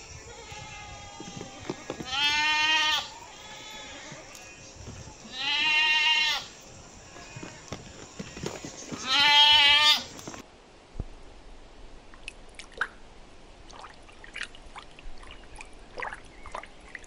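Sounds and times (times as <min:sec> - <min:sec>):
goats bleating: 0:00.1 - 0:10.2.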